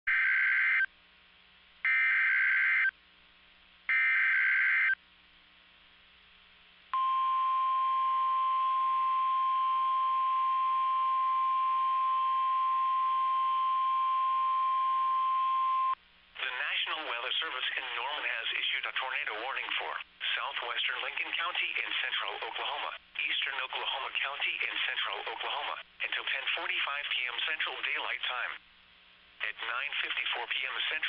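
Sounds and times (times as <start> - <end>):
steady single-pitch alarm tone: 3.9 - 5.0, 7.0 - 16.0.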